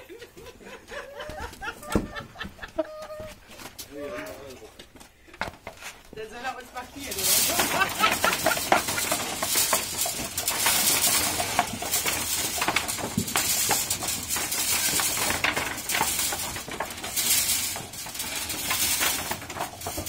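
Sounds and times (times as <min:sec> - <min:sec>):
potatoes clattering in machine: 0:06.5 - 0:20.0.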